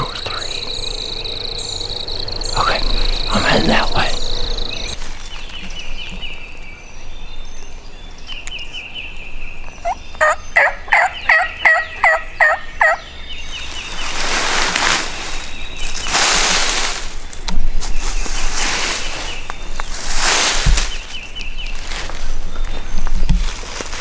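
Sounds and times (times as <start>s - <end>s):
wild turkey calling: 0.0s - 5.0s, 9.8s - 14.2s
noisy rustle: 0.0s - 6.1s, 13.4s - 24.0s
faint songbird trill: 0.0s - 23.9s.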